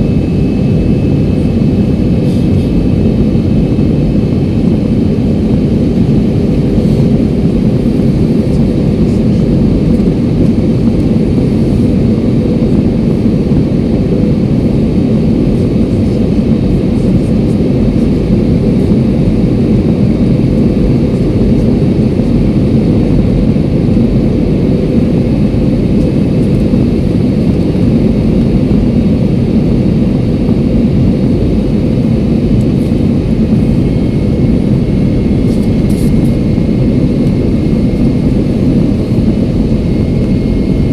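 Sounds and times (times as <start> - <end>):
airliner cabin rumble: 0.0 - 40.9
faint steady hum: 25.8 - 40.9.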